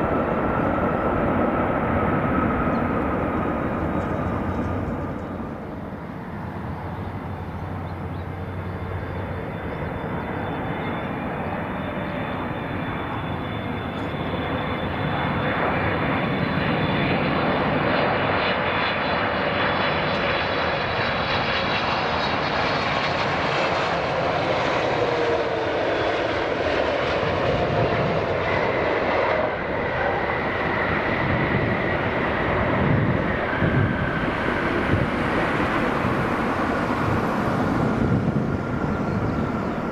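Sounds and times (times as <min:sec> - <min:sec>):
jet airliner engines passing: 0:00.0 - 0:39.9.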